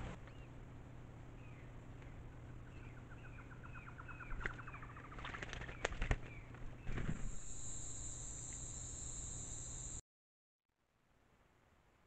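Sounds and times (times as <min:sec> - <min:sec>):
wings flapping: 0:04.3 - 0:07.6
bird splashing in water: 0:04.4 - 0:06.3
camera hiss: 0:07.3 - 0:10.0.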